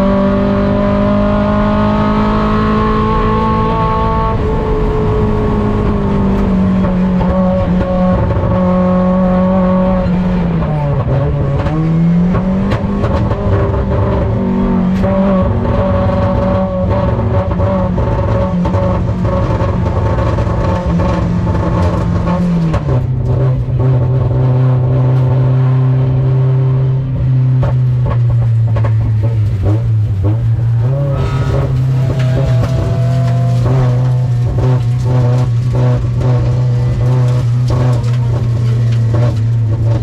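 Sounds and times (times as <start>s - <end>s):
race car engine revving: 0.0s - 40.0s.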